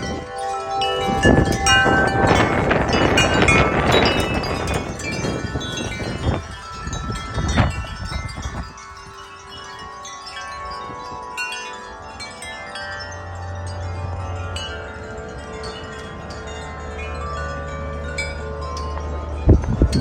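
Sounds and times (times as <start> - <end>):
gusty wind buffeting microphone: 0.0 - 11.5, 19.3 - 20.0
wind chimes ringing: 0.0 - 20.0.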